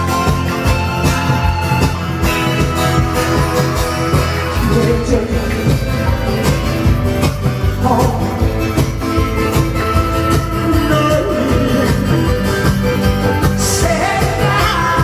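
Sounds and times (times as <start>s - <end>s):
guitar: 0.0s - 15.0s
live band music: 0.0s - 15.0s.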